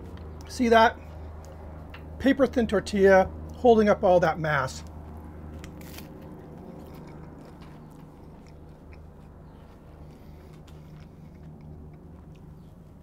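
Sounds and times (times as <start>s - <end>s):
steady low hum: 0.0s - 13.0s
crisp tortilla crunching: 4.9s - 12.6s.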